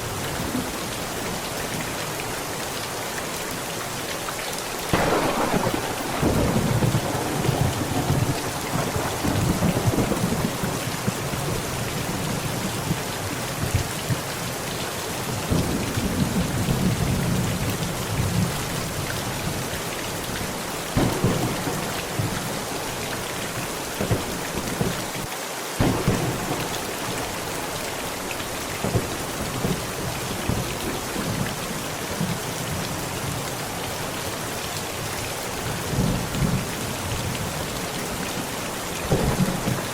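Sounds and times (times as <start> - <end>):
heavy rain on a tent: 0.0 - 39.9
sharp thunder claps: 4.9 - 12.9, 21.0 - 25.2, 25.8 - 31.4, 39.0 - 39.9
rolling thunder: 4.9 - 13.0, 21.0 - 25.2, 25.8 - 31.5, 39.0 - 39.9.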